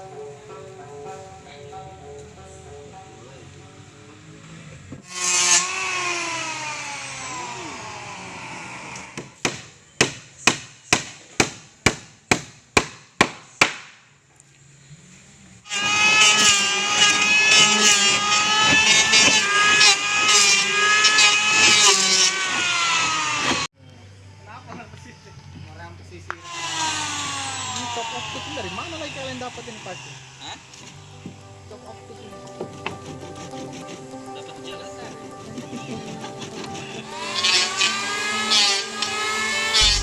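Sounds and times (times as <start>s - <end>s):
power tool whining: 5.0s - 9.2s, 15.7s - 23.7s, 26.4s - 31.2s, 35.8s - 40.0s
hammer blows: 39.7s - 40.0s.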